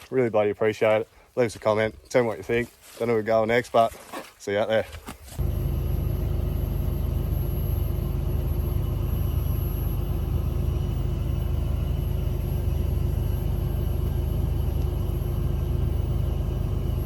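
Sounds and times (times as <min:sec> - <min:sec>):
steady low rumble: 0:05.4 - 0:17.0.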